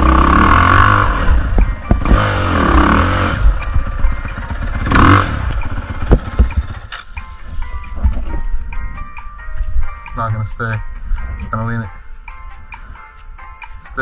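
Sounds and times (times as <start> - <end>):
dirt bike engine revving: 0.0 - 7.1.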